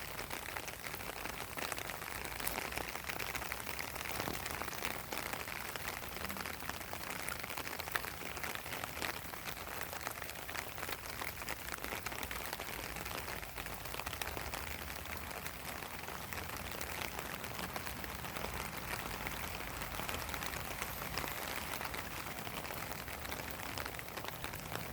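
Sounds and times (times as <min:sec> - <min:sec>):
rain falling on a pond: 0:00.0 - 0:24.9.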